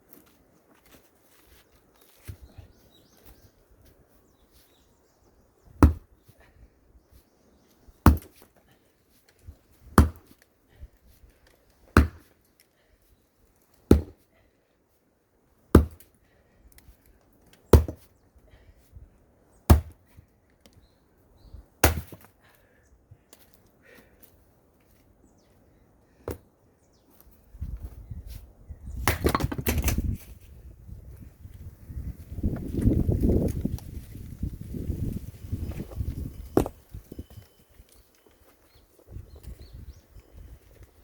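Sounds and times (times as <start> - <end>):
axe chopping firewood: 5.7 - 6.2, 8.0 - 8.6, 9.8 - 10.4, 11.9 - 12.4, 13.8 - 14.2, 15.7 - 16.1, 17.7 - 18.1, 19.7 - 20.2, 21.8 - 22.3, 26.2 - 26.4, 29.0 - 30.1.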